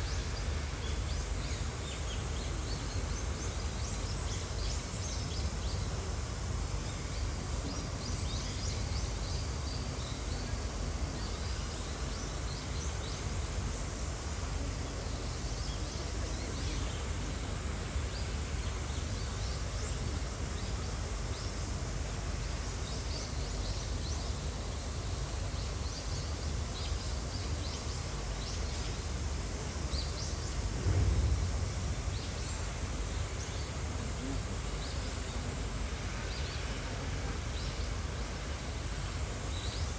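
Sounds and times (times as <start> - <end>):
loud low bump: 30.6 - 32.6
low rumble: 30.6 - 33.1.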